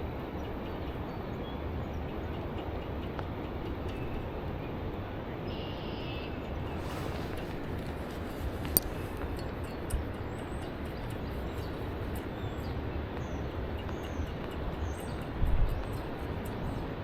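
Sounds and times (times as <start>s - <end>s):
low rushing outdoor noise: 0.0s - 17.0s
faint bird chirps: 5.5s - 7.8s.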